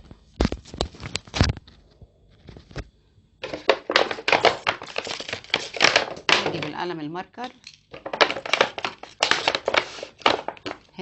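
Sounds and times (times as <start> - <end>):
taps on plastic bottle: 3.4 - 6.8
plastic bottle crackling: 3.4 - 6.9, 7.9 - 11.0.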